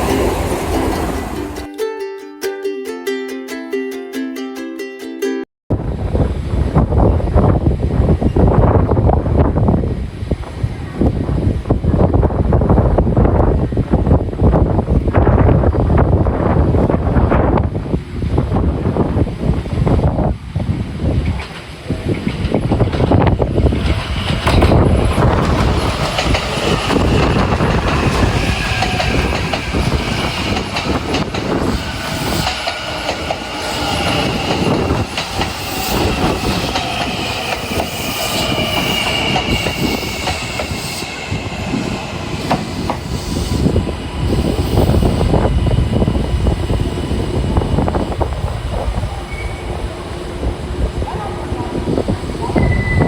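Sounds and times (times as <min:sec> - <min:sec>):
train wheels clacking over rail joints: 0:00.0 - 0:01.7, 0:21.1 - 0:46.5.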